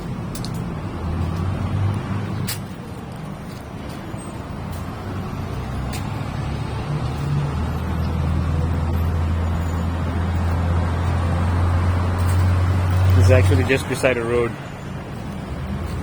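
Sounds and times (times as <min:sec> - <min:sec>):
motor vehicle engine rumbling: 0:00.0 - 0:16.0.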